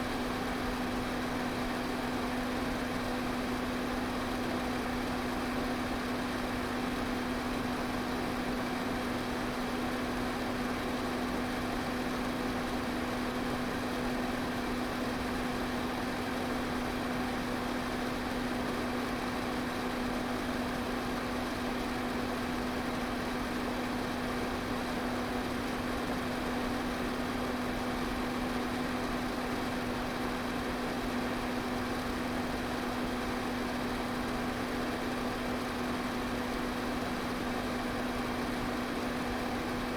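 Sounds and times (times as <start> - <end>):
electric fan running: 0.0 - 2.0.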